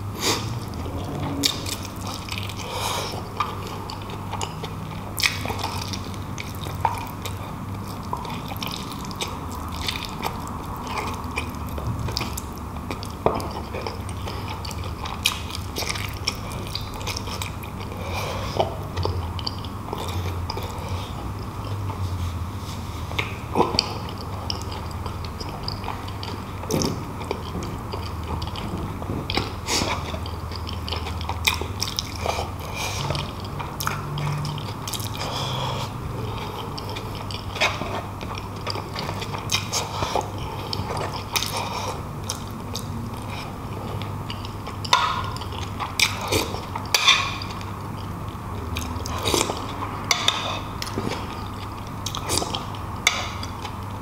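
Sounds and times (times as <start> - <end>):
man chewing and biting: 23.1 - 54.0.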